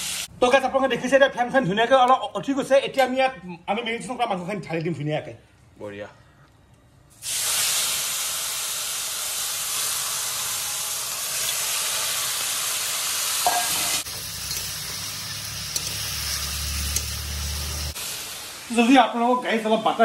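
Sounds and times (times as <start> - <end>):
chicken sizzling in butter: 7.2 - 19.0.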